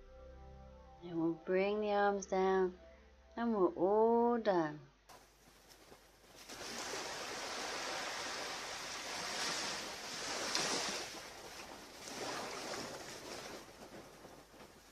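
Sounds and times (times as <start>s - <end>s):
ocean surf washing onto beach: 6.4s - 14.9s.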